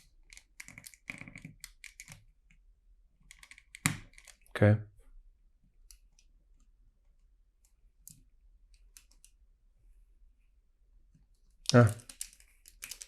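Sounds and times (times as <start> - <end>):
plastic toy bricks clicking: 0.2 - 2.2, 11.6 - 13.0.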